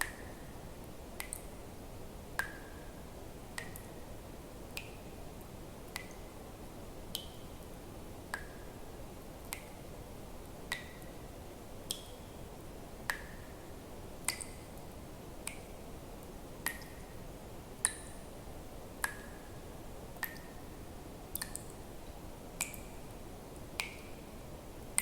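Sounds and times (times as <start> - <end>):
faint low hiss: 0.0 - 25.0
water drops plinking into water: 1.2 - 1.5, 3.6 - 3.9, 5.9 - 6.2, 7.1 - 7.4, 10.7 - 11.1, 11.9 - 12.2, 13.1 - 13.6, 14.2 - 14.6, 16.6 - 17.1, 17.8 - 18.2, 19.0 - 19.4, 20.2 - 20.5, 21.3 - 21.8, 22.6 - 22.9, 23.8 - 24.1.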